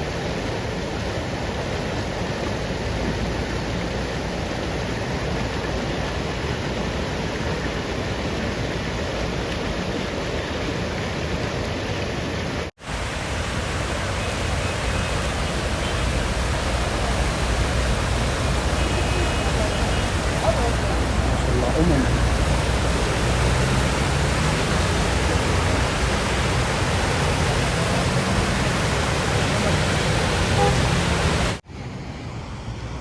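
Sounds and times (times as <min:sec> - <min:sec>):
running water: 0:00.0 - 0:31.7
heavy rain: 0:10.8 - 0:31.6.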